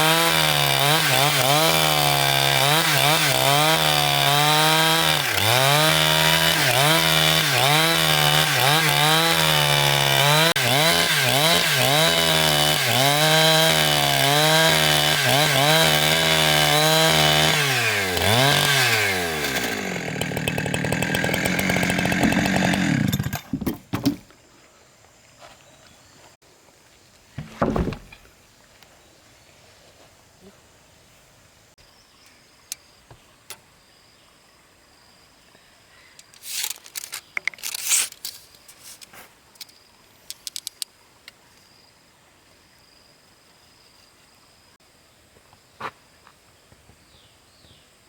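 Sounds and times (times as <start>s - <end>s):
chainsaw cutting timber: 0.0s - 24.2s.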